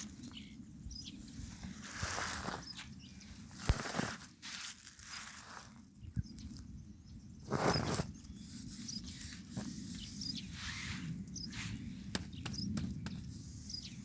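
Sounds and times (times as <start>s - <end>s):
faint bird chirps: 6.0s - 14.0s.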